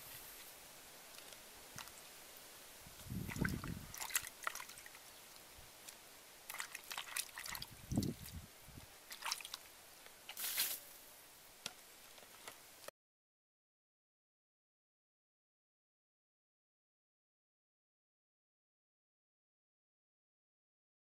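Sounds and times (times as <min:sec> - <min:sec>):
hand sloshing produce in water: 0:03.2 - 0:05.0, 0:06.5 - 0:08.3, 0:09.1 - 0:09.6.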